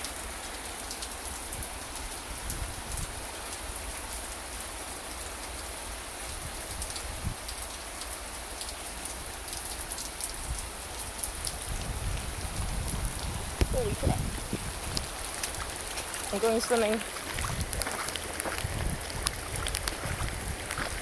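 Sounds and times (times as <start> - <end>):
steady rain falling: 0.0 - 21.0
sharp raindrop hits: 9.4 - 21.0.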